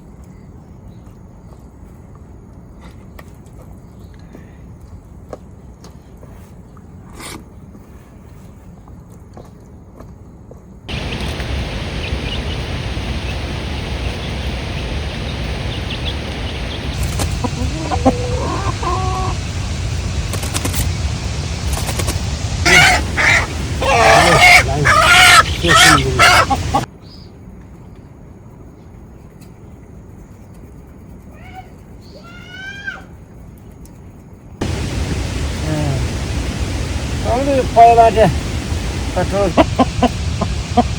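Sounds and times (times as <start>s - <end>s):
chickens clucking: 10.9s - 20.8s, 22.0s - 26.9s, 34.6s - 40.9s
steady noise with deep rumble: 10.9s - 26.9s, 34.3s - 40.9s.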